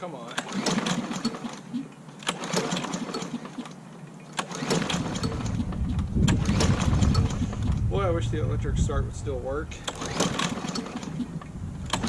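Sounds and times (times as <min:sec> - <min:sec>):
mower engine cranking: 0:00.0 - 0:07.9, 0:09.7 - 0:12.0
clicks and rattles: 0:09.8 - 0:12.0.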